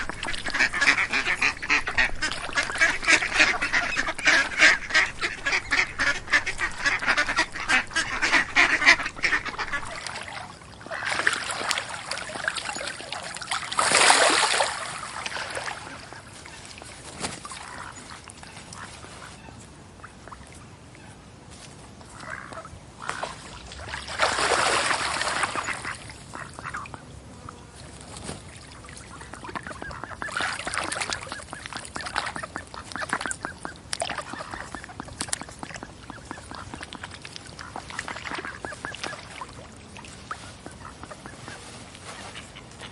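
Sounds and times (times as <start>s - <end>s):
ducks quacking: 0.0s - 12.5s, 24.3s - 27.6s, 28.8s - 42.9s.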